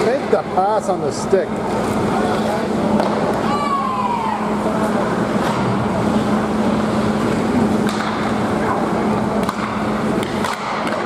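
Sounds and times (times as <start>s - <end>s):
constant low hum: 0.0s - 11.0s
stick and puck clicks: 9.4s - 11.0s.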